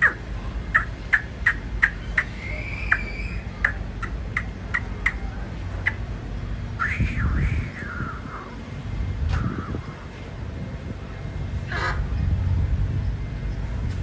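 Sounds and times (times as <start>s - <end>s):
chick peeping: 0.0s - 5.2s.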